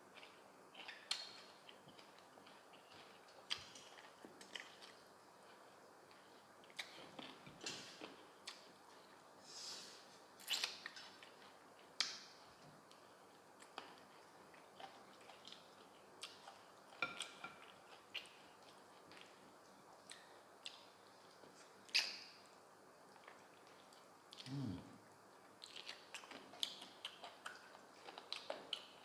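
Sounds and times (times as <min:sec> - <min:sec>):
long sucking hiss: 0:09.4 - 0:10.2.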